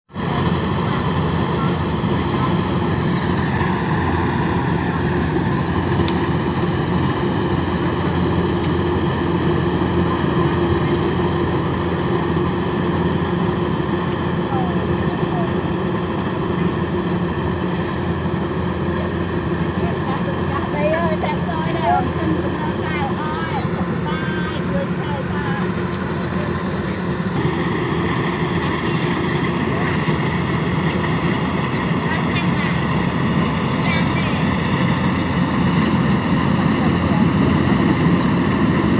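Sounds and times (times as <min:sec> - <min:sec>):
machine engine droning: 0:00.1 - 0:38.9.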